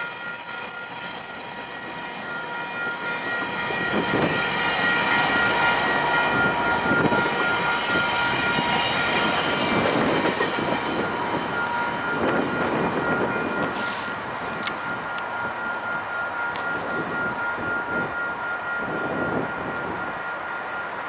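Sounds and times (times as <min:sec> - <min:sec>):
high wheel squeal: 0:00.0 - 0:21.0
train rumbling past: 0:00.6 - 0:21.0
level crossing bell ringing: 0:02.2 - 0:09.4, 0:11.0 - 0:20.2.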